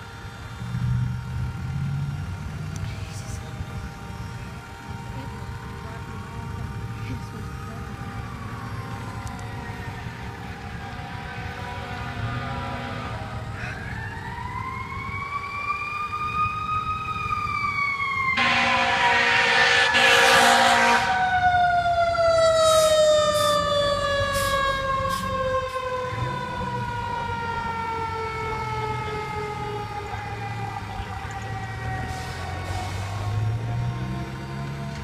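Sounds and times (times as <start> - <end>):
fire truck siren wailing: 0.0 - 35.0
loud horn blast: 18.4 - 21.3.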